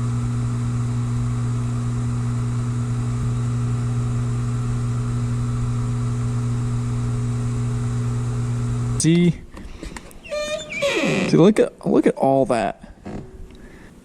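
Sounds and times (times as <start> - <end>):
dishwasher pump hum: 0.0 - 9.0.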